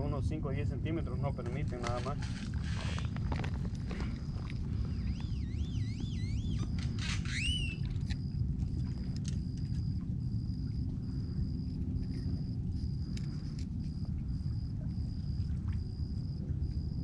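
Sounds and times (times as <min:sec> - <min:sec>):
low outdoor rumble: 0:00.0 - 0:17.0
bird whistling: 0:05.0 - 0:07.9.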